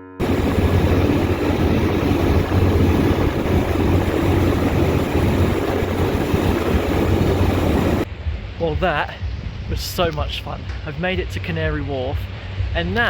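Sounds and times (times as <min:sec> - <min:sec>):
boat engine drone: 0:00.0 - 0:08.8
wind noise: 0:00.0 - 0:13.0
rushing water: 0:00.2 - 0:08.1.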